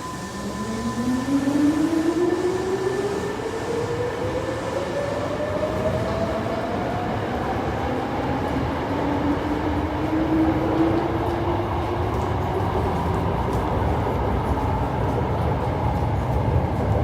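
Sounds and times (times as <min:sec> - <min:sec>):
subway train motor whine: 0:00.0 - 0:17.0
train wheels rumbling: 0:08.4 - 0:17.0.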